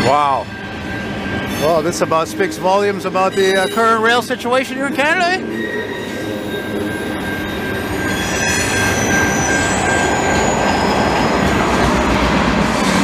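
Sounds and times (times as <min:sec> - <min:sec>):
wheels rumbling on rail: 0:00.0 - 0:13.0
high-pitched wheel squeal: 0:00.9 - 0:04.2, 0:05.4 - 0:11.6.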